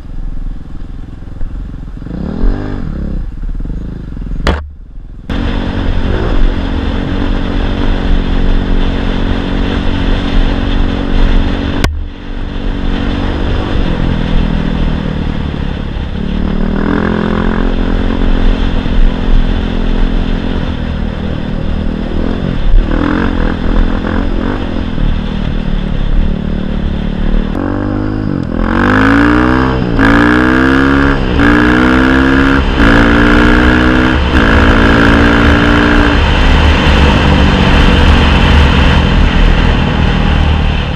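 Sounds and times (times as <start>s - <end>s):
motorcycle engine revving: 0.9s - 40.9s.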